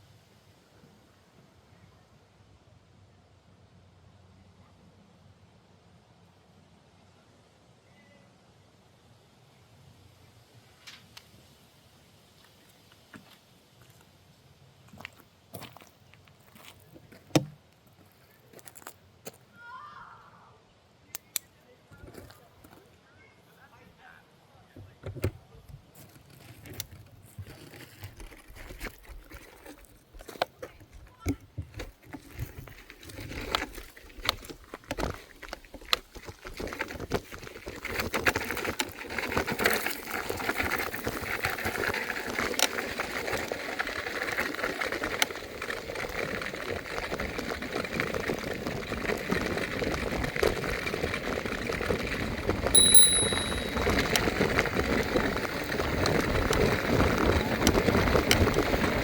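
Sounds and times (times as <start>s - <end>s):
wind and tyre noise: 31.7s - 59.0s
short high-pitched beep: 52.8s - 54.0s.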